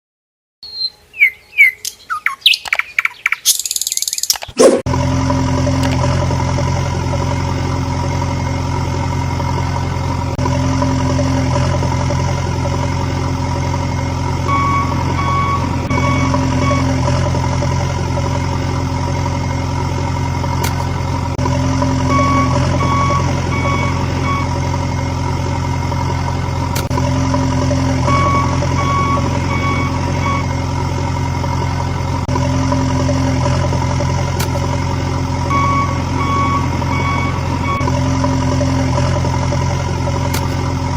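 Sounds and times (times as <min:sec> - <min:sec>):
backhoe engine drone: 0:04.3 - 0:40.9
reversing alarm beeping: 0:13.8 - 0:18.1, 0:21.7 - 0:26.0, 0:27.4 - 0:31.9, 0:35.4 - 0:38.0.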